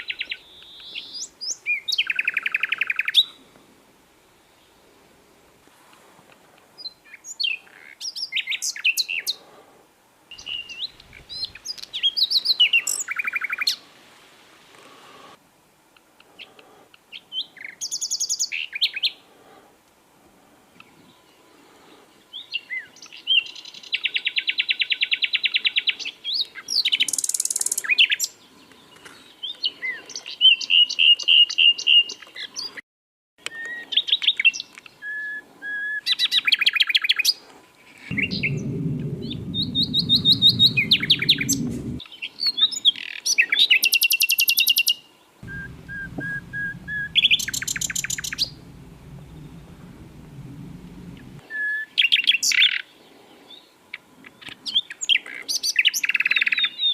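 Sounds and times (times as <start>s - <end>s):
low rumble: 38.1s - 42.0s, 45.4s - 51.4s
bird singing trills and chirps: 45.4s - 51.4s.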